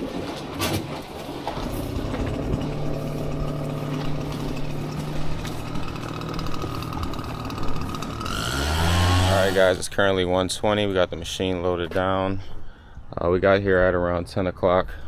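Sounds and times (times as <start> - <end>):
metal clanks and knocks: 0.0 - 8.4
loader engine running: 1.1 - 9.9.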